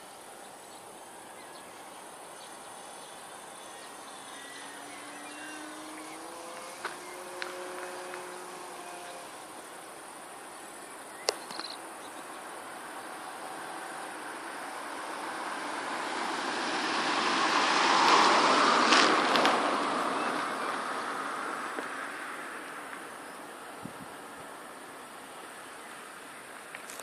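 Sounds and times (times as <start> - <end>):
model airplane motor buzz: 4.2 - 9.6.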